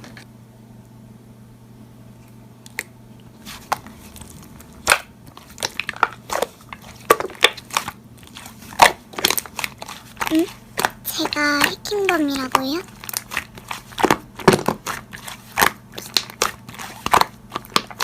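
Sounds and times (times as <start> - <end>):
slime being pressed: 8.7 - 18.0.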